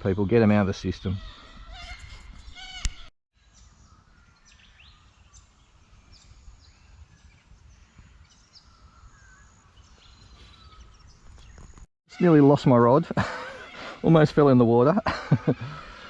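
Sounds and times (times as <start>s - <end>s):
bird chirps: 0.9s - 11.8s.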